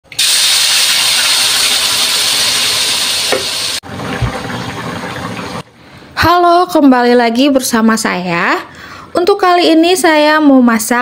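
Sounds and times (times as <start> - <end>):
spice paste sizzling in oil: 0.2 - 3.8.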